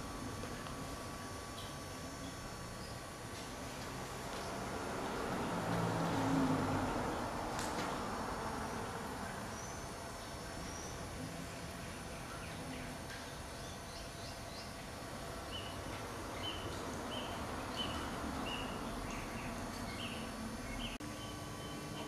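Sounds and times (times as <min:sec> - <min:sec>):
steady background hiss: 0:00.0 - 0:22.0
small birds chirping: 0:09.2 - 0:22.0.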